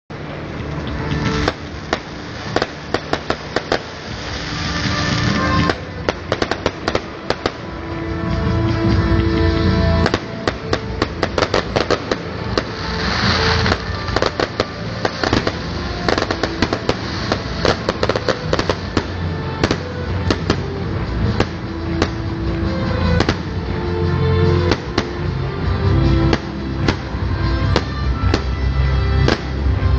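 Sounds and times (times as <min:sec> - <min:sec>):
fireworks bangs and crackling: 0:00.1 - 0:29.9
hissing crackle: 0:00.1 - 0:29.9
music playing: 0:00.1 - 0:29.9.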